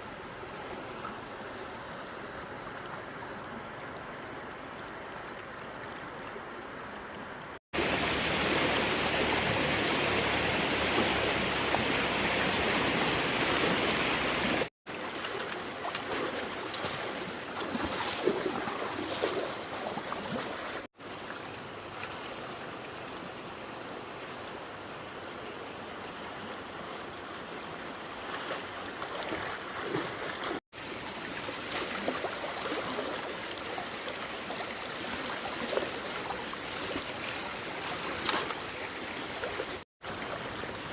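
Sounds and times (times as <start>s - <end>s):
rushing water: 0.0s - 40.9s
short splashes: 13.1s - 20.9s.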